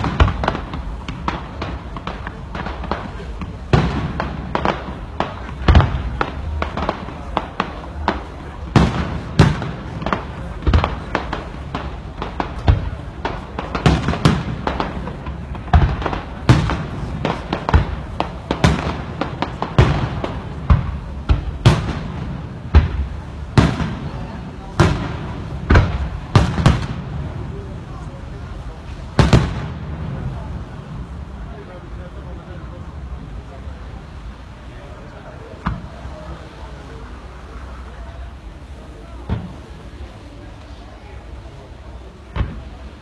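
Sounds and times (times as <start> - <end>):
firework shells bursting: 0.0 - 27.6
fireworks crackling: 0.0 - 43.0.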